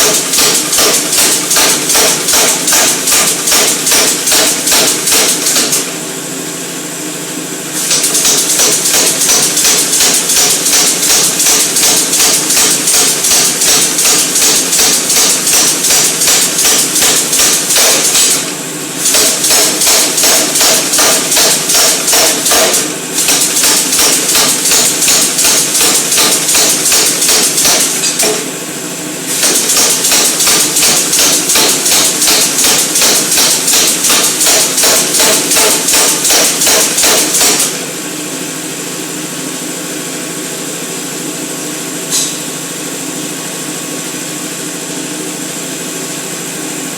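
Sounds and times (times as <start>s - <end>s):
air hammer striking: 0.0s - 5.9s, 7.8s - 28.6s, 29.3s - 38.0s, 42.1s - 42.6s.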